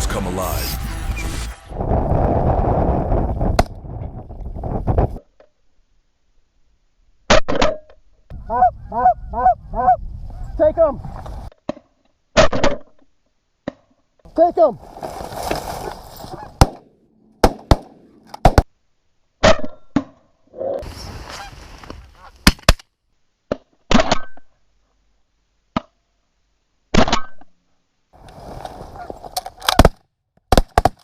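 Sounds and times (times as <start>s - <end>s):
geese honking: 8.4s - 10.6s
shotgun blasts: 16.6s - 18.6s.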